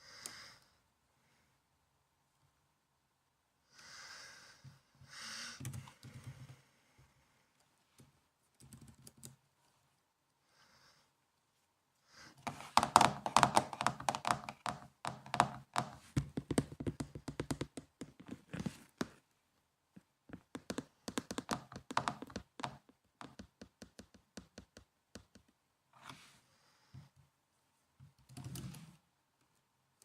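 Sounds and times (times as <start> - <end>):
typing on laptop keyboard: 5.6 - 6.5, 8.6 - 9.4, 12.4 - 18.4, 20.4 - 25.5, 28.2 - 28.9.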